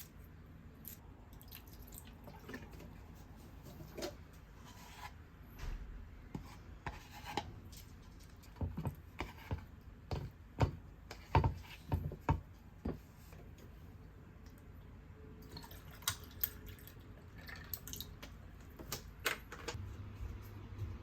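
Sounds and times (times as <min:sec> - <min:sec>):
objects scraping on a surface: 0:03.8 - 0:05.2.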